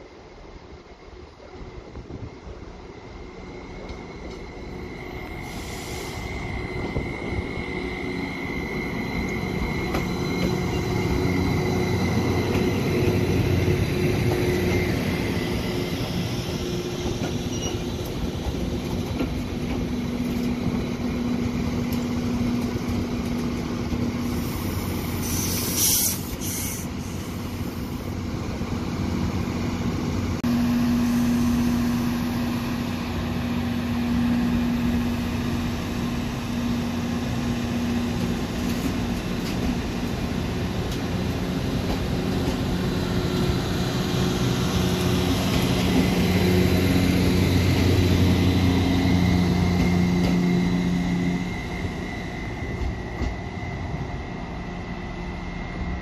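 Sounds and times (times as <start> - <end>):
train passing on rails: 0.0 - 56.0
high wheel squeal: 4.2 - 18.4, 24.2 - 27.9.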